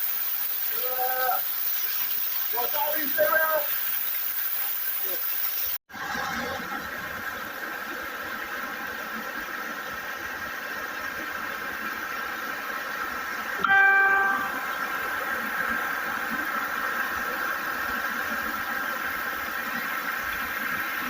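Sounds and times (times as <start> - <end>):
high-pitched background drone: 13.6 - 16.1.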